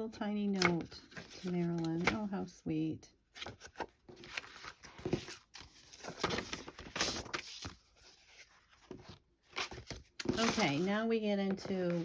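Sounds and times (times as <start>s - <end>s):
paper rustling and sliding: 3.4s - 11.0s.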